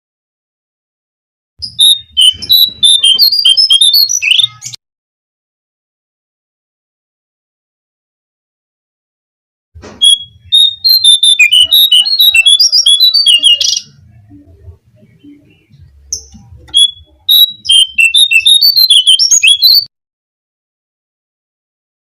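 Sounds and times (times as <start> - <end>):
rapid high bird chirping: 1.6 - 4.8, 10.0 - 14.1, 15.0 - 19.9.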